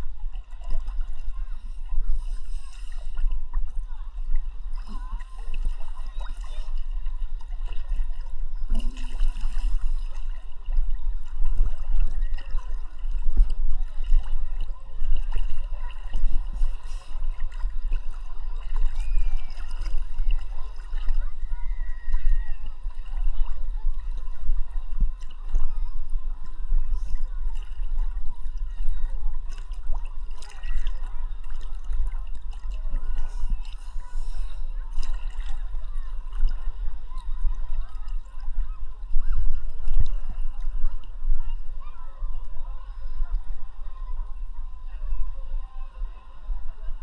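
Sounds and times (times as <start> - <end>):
seawater sloshing and lapping: 0.0 - 46.9
constant low rumble: 0.0 - 47.0
small splashes and clicks: 4.7 - 21.2, 27.0 - 33.9.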